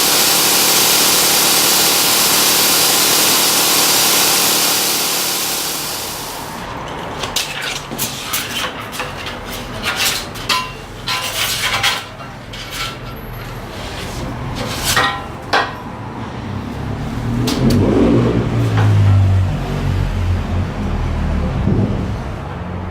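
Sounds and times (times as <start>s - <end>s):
power tool grinding hiss: 0.0s - 6.7s.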